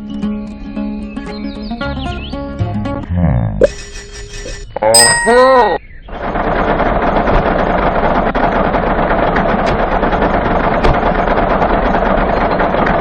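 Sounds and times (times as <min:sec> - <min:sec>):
engine running steadily: 0:06.1 - 0:13.0.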